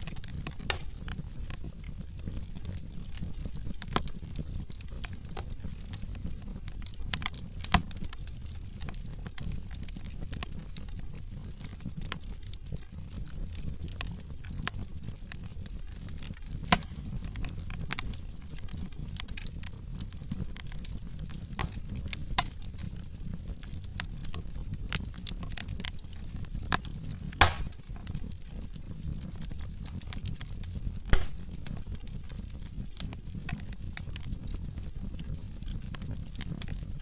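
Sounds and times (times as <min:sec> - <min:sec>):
fire pops: 0:00.0 - 0:37.0
log fire crackling: 0:00.0 - 0:37.0
low fire rumble: 0:00.0 - 0:37.0.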